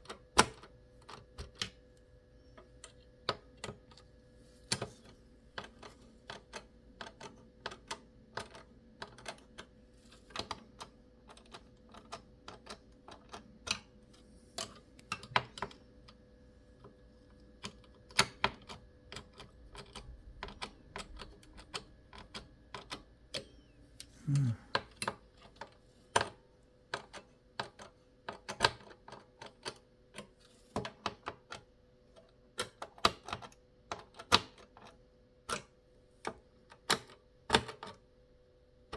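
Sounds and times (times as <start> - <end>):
faint steady hum: 0.0 - 28.0
computer parts clicking and tapping: 4.7 - 16.2, 16.8 - 23.6.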